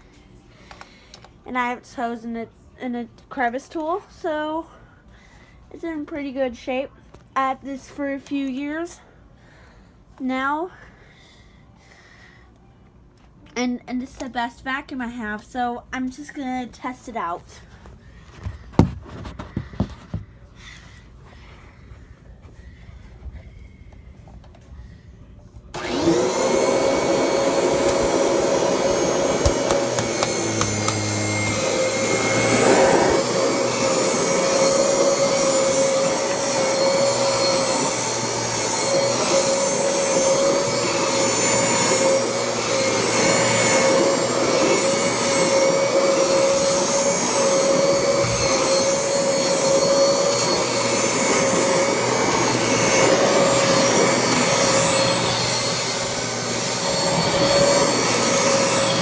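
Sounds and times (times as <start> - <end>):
vacuum cleaner motor whining: 25.7 - 59.0.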